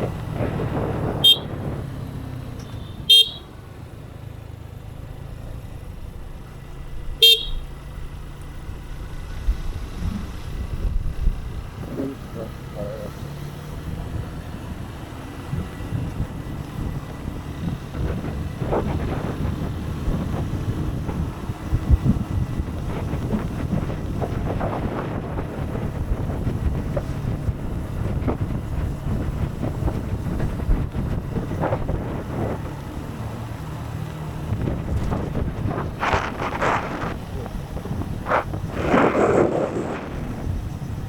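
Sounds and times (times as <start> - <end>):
wind buffeting microphone: 0.0 - 3.1, 8.6 - 41.0
motorcycle engine running: 0.0 - 41.0.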